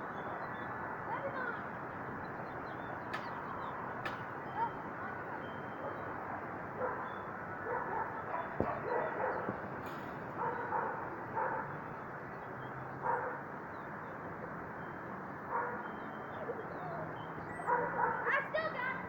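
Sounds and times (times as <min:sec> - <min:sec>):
dog barking: 0:05.8 - 0:09.5, 0:10.4 - 0:11.8, 0:13.0 - 0:13.4, 0:15.5 - 0:15.9, 0:17.6 - 0:18.5.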